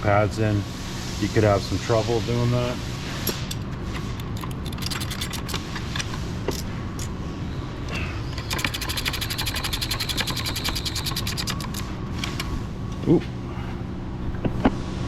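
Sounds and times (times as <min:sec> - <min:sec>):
metal tool clicks: 0:03.2 - 0:07.2, 0:08.3 - 0:12.5
fast mechanical clicking: 0:03.3 - 0:07.2, 0:08.3 - 0:12.5.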